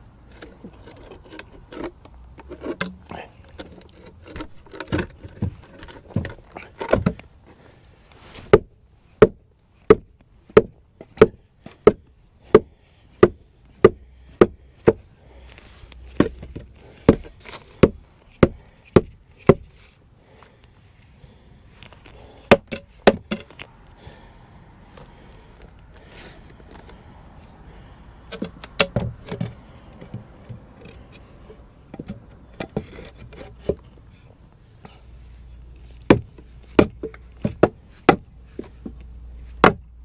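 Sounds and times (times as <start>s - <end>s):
hammer striking wood: 8.5s - 15.0s, 16.2s - 19.7s, 22.5s - 23.5s, 36.1s - 39.0s, 39.6s - 39.9s.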